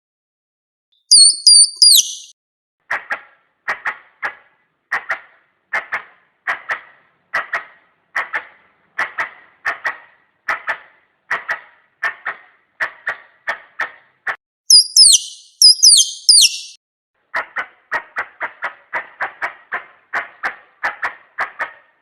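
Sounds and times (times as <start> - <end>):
high whistled squirrel calls: 1.1 - 2.3, 14.7 - 16.8.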